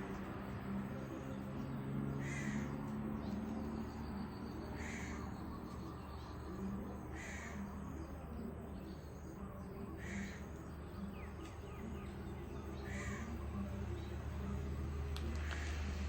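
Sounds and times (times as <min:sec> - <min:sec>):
faint bird chirps: 0:00.9 - 0:15.8.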